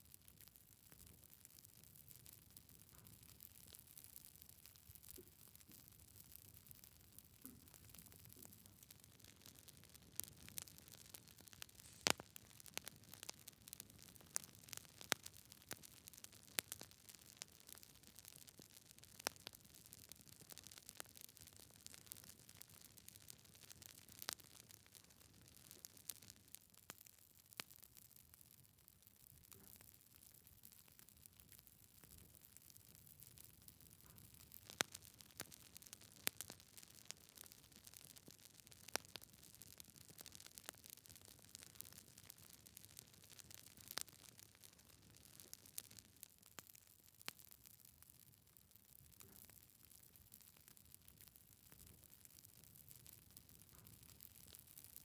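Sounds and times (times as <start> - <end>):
faint fire hiss: 0.0 - 21.1
wood fire crackling: 0.2 - 28.6, 29.2 - 55.0.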